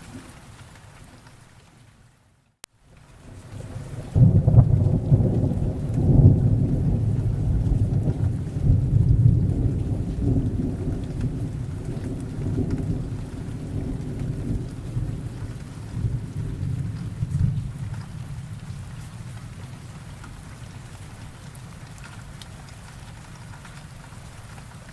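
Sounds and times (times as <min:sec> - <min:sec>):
steady rain: 0:00.0 - 0:24.9
thunder rumbling: 0:03.3 - 0:21.9.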